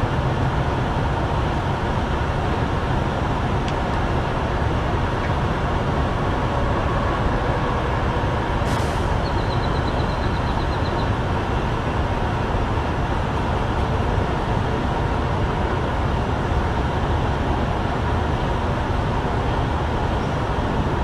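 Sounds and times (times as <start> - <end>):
diesel trucks idling: 0.0 - 21.0
short hiss: 8.7 - 9.1.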